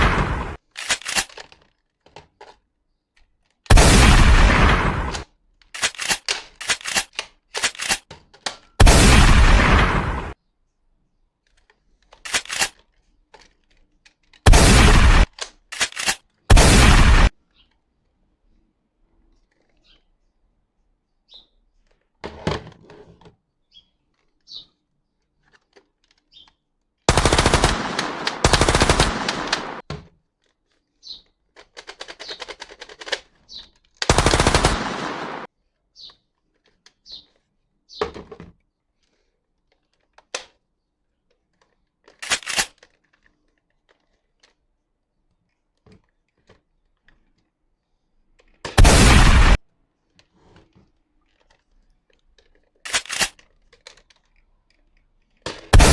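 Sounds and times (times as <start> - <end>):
toy gun machine-gun fire: 27.1 - 29.8, 55.5 - 55.9
short clicks: 41.6 - 43.0, 52.8 - 54.4.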